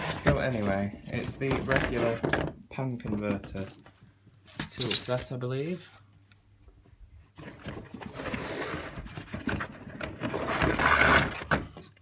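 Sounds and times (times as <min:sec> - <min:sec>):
packaging rustling and scraping: 0:00.0 - 0:02.3.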